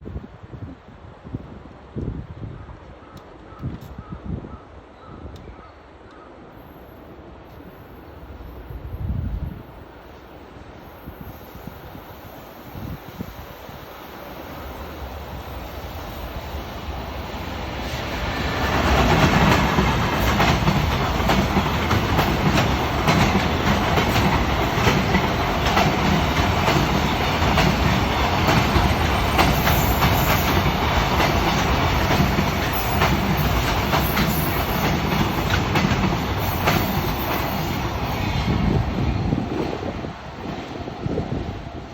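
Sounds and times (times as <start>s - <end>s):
freight train passing: 4.6s - 41.9s
train wheels clacking over rail joints: 18.4s - 38.0s.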